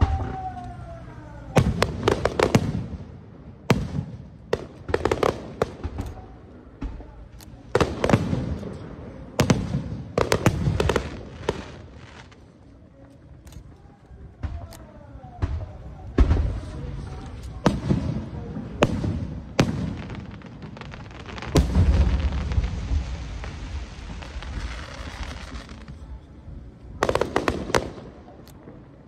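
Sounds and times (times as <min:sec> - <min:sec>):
firework crackling shimmer: 0:19.9 - 0:28.2.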